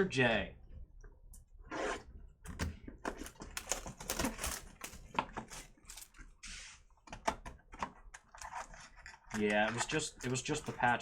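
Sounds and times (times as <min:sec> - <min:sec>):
packaging rustle: 0:03.1 - 0:06.3.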